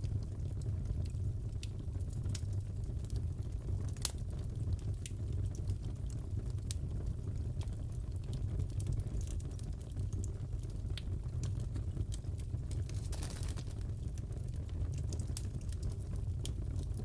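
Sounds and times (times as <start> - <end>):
fire popping and crackling: 0.0 - 17.0
burning wood rumble: 11.4 - 17.0.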